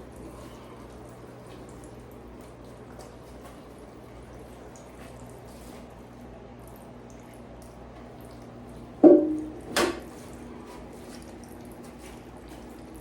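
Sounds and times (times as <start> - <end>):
steady low hum: 8.2 - 9.8.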